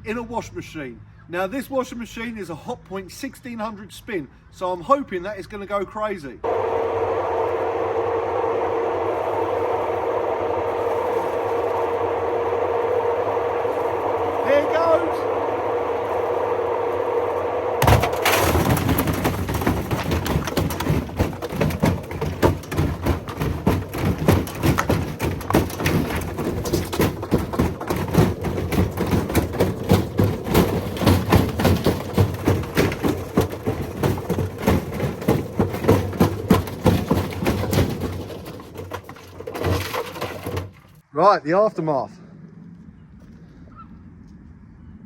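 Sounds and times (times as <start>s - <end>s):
brick banging in washing machine drum: 17.8s - 41.0s.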